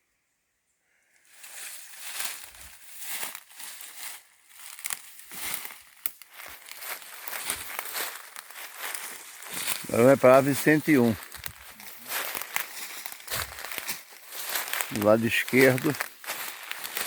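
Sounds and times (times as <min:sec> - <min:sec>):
footsteps crunching through dry leaves: 0:01.3 - 0:17.0.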